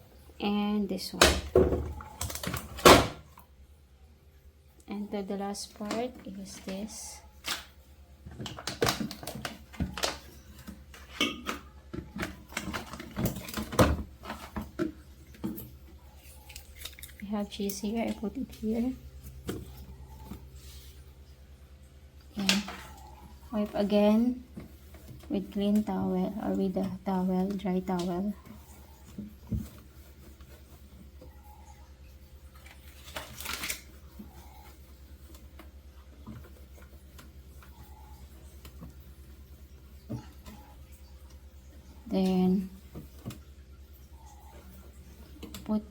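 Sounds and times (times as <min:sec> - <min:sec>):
low steady hum: 0:00.0 - 0:45.9
food containers knocking and clicking: 0:08.2 - 0:15.8
towel wiping refrigerator: 0:17.4 - 0:21.4, 0:22.7 - 0:32.0.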